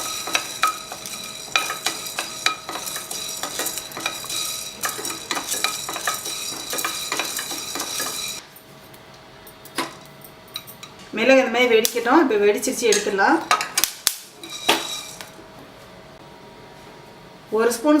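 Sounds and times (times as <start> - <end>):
spoon scraping pan: 0.0 - 8.4, 14.4 - 15.3
peppercorns crackling: 0.0 - 8.5, 13.7 - 15.4.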